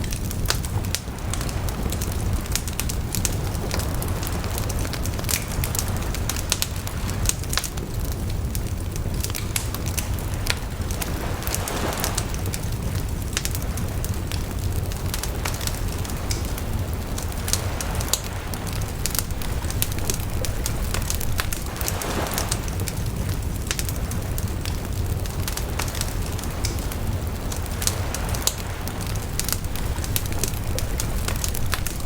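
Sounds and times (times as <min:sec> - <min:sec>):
fire hissing: 0:00.0 - 0:32.0
wood fire crackling and popping: 0:00.0 - 0:32.0.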